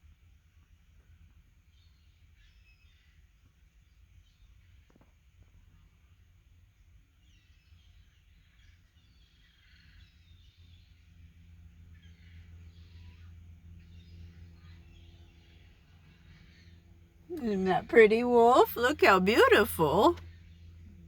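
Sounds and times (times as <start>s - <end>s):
low steady hum: 17.3s - 20.2s.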